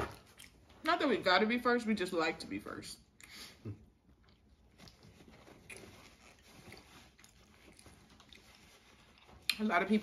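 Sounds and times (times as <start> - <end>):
people chewing and mouth smacks: 0.0 - 0.8, 3.2 - 9.7.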